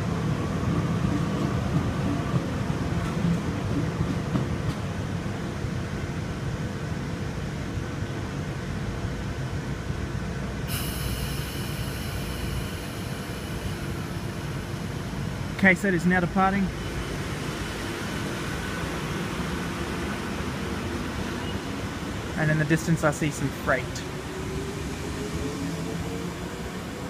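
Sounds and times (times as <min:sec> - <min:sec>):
electric train rumbling: 0:00.0 - 0:27.0
high multi-tone whine: 0:10.6 - 0:18.9.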